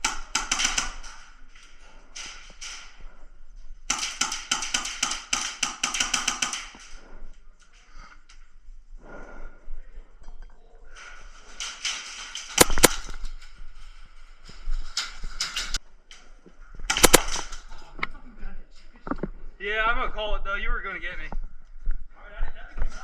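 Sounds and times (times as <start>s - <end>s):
airsoft guns firing: 0.0s - 3.0s, 3.9s - 7.0s, 11.6s - 13.4s, 16.9s - 17.7s.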